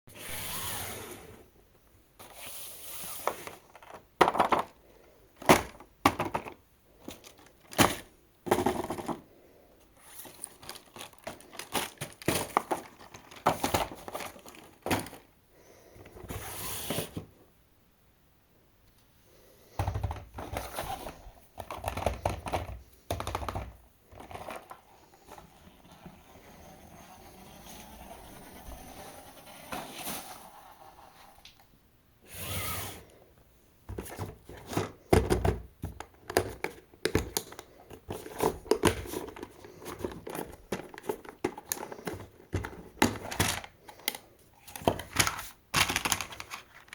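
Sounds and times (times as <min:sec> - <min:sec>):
plastic packaging crinkling: 0:10.0 - 0:15.3, 0:37.3 - 0:46.9.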